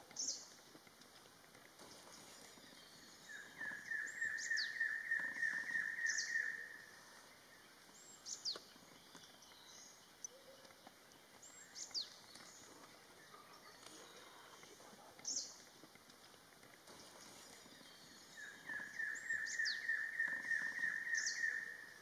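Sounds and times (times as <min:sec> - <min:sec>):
background hiss: 0:00.0 - 0:22.0
high falling bird whistles: 0:18.4 - 0:21.8.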